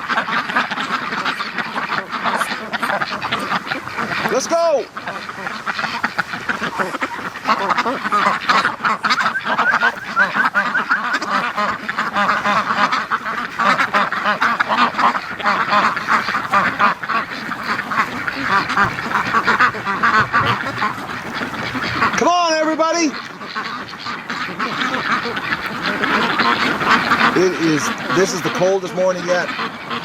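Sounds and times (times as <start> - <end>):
ducks quacking: 0.0 - 30.0.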